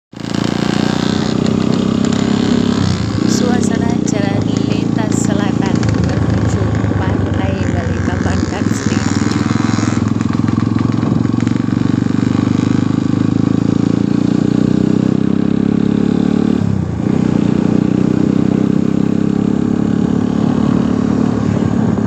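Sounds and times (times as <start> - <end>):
engine running loudly: 0.1 - 22.0.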